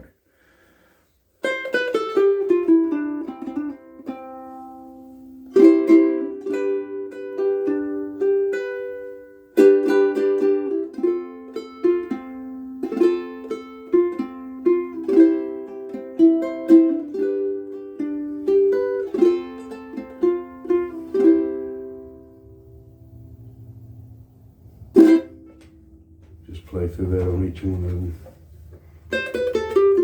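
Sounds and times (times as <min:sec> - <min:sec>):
ukulele plucked notes and chords: 0:01.4 - 0:30.0.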